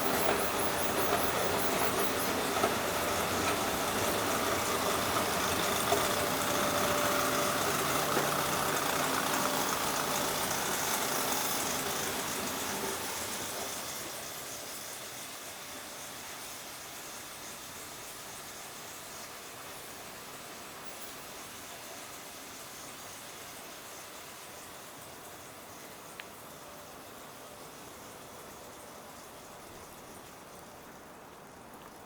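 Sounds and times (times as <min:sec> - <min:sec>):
vehicle engine humming: 0:00.0 - 0:14.4.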